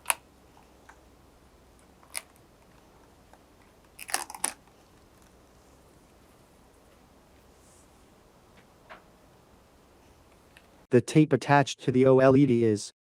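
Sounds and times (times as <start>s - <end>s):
crinkling crackling clicks: 0.0s - 1.0s, 1.8s - 5.4s.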